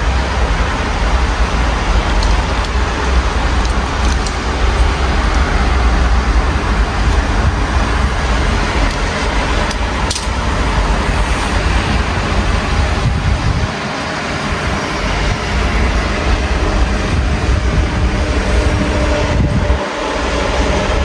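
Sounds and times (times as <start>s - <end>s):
low traffic rumble: 0.0s - 21.0s
steady rain: 0.0s - 21.0s.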